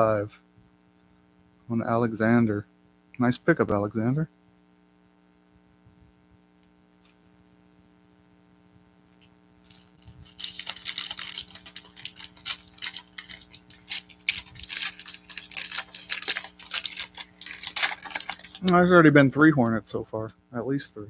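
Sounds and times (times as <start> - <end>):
low electrical hum: 0.0 - 21.0
foil wrapper crinkling: 9.2 - 19.8.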